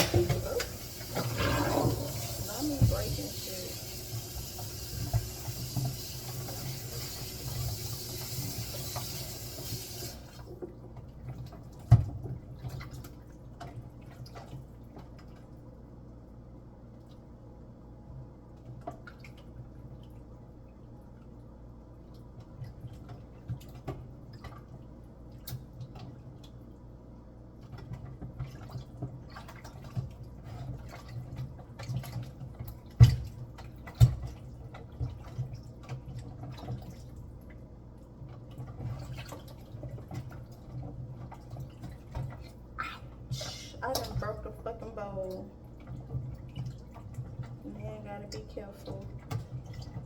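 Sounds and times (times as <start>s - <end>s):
water dripping: 41.2s - 50.0s.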